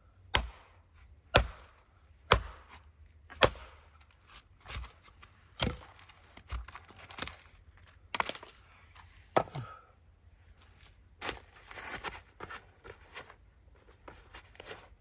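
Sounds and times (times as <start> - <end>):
axe chopping firewood: 0.3 - 7.3, 9.3 - 9.8.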